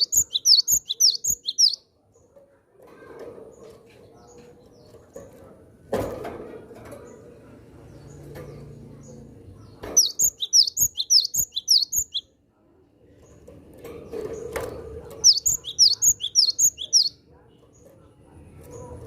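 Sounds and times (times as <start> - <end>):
bird chirping rapidly: 0.0 - 1.8, 9.9 - 12.3, 15.2 - 17.2.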